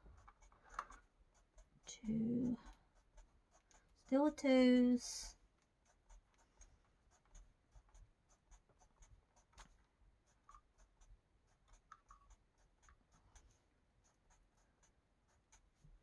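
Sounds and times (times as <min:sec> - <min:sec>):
marker scratching on paper: 0:05.2 - 0:15.9.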